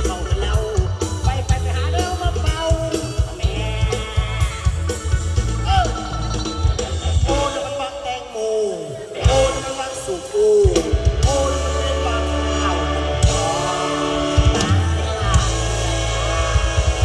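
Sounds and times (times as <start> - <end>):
drum kit beat: 0.0 - 8.0, 9.1 - 17.0
bass: 0.0 - 8.4, 9.1 - 17.0.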